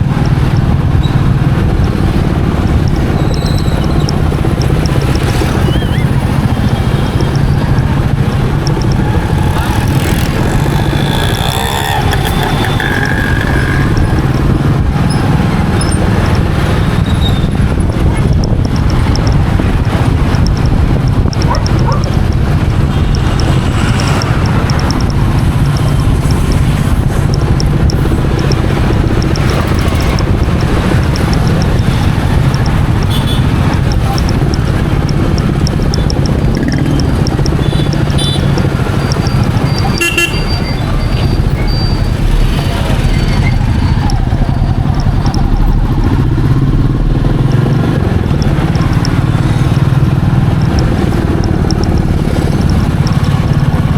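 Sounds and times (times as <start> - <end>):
motorcycle engine running: 0.0 - 53.9
wind and road noise: 0.0 - 53.9.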